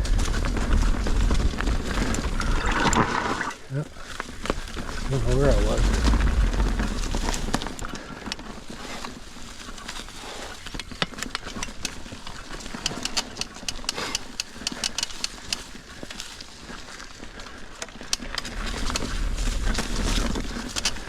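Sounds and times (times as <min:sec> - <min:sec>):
bike rattling and clacking: 0:00.0 - 0:03.0, 0:04.0 - 0:21.0
tyres rolling on rock and dirt: 0:00.0 - 0:21.0
wind on microphone: 0:05.0 - 0:08.0.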